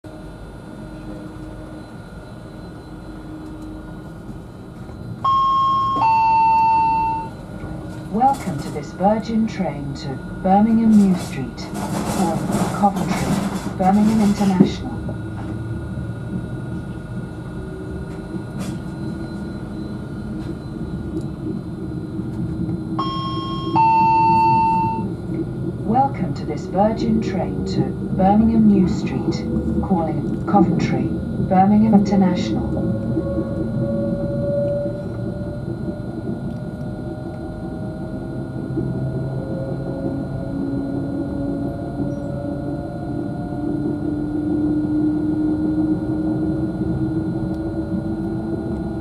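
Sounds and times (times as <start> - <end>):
train interior low rumble: 0.0 - 49.0
faint whining tones: 0.1 - 49.0.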